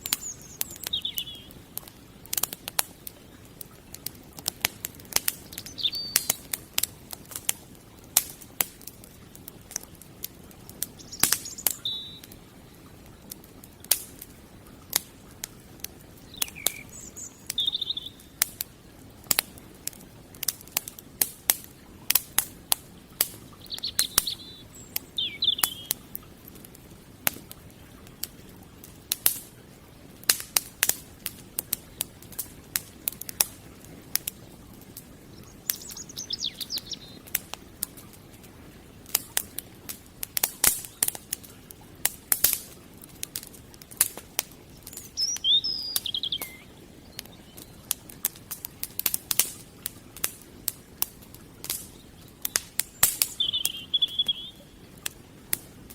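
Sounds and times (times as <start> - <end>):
bird chirping: 0.0 - 1.6, 5.4 - 6.4, 11.0 - 12.3, 16.3 - 18.3, 23.6 - 26.0, 35.3 - 37.2, 44.7 - 47.8, 52.9 - 54.8
firewood crackling and popping: 0.0 - 55.9.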